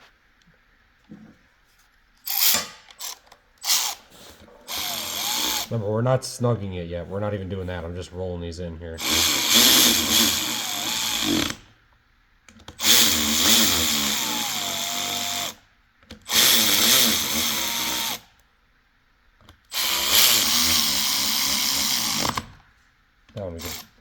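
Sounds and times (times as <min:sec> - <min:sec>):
cordless drill spinning bolts: 0:02.2 - 0:04.1, 0:04.7 - 0:05.8, 0:09.0 - 0:11.6, 0:12.6 - 0:15.6, 0:16.2 - 0:18.3, 0:19.7 - 0:22.6, 0:23.6 - 0:24.0.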